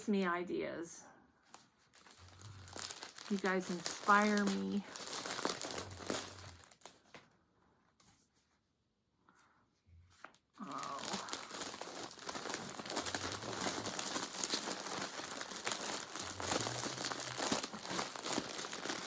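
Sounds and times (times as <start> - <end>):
plastic bag crinkling: 1.5 - 7.2, 10.6 - 19.0.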